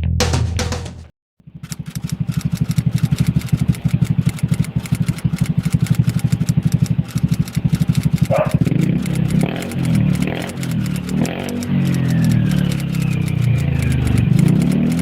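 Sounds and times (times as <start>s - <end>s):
music: 0.0s - 1.1s
scooter engine idling: 1.4s - 15.0s.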